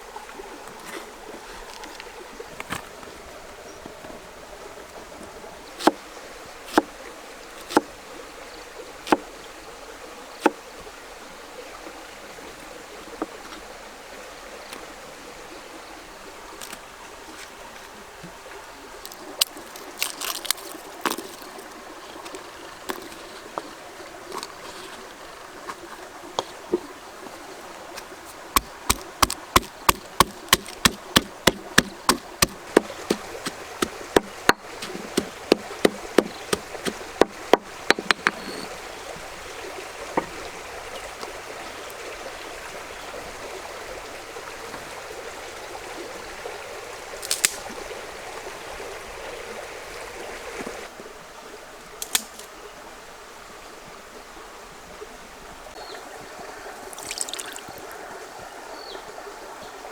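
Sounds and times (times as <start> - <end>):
sharp knocks: 28.6 - 38.7.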